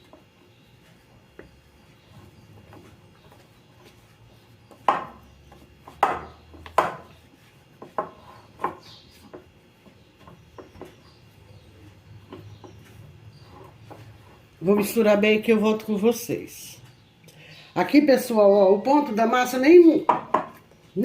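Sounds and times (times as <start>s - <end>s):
spoon stirring dough in a bowl: 0.0s - 16.2s.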